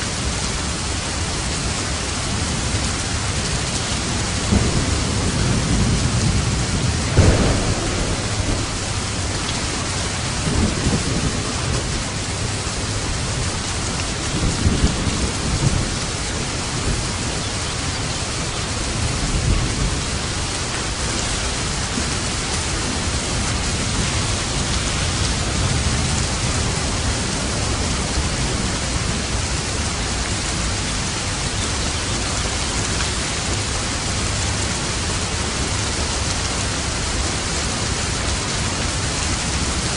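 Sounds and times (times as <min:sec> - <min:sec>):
heavy rain: 0:00.0 - 0:39.9
thunder rumbling: 0:03.9 - 0:34.3.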